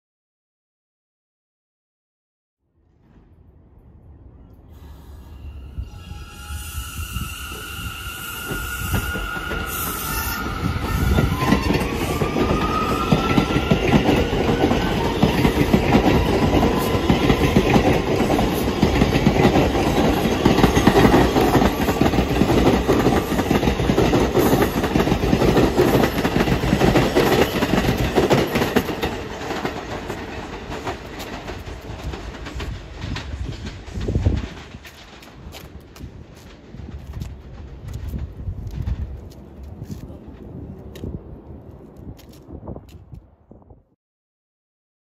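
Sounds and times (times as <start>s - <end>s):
train rumble: 3.0s - 43.7s
train wheels clattering: 8.4s - 40.0s.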